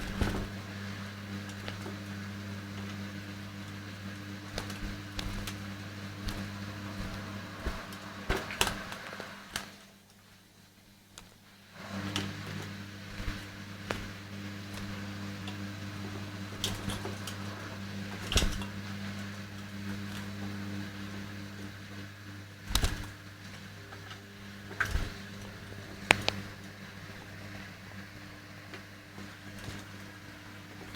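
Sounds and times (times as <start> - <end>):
electric appliance motor hum: 0.0 - 30.9
sharp clicks and knocks: 26.1 - 26.5.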